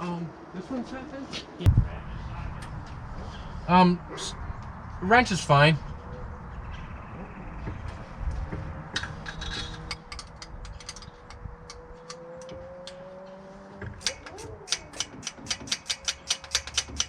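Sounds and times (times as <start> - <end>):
hand tools metal clicks: 8.9 - 13.0, 14.0 - 17.0
ratchet wrench clicking: 14.0 - 17.0.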